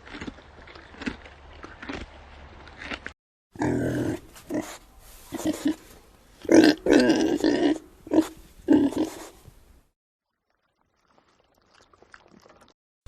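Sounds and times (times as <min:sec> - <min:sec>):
pig grunting: 0:03.6 - 0:05.8, 0:06.4 - 0:09.4.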